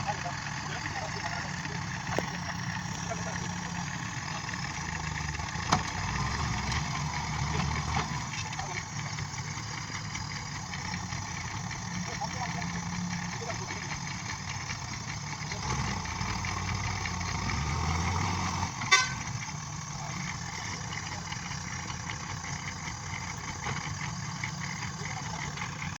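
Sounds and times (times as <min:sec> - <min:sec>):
construction vehicle engine running: 0:00.0 - 0:26.0.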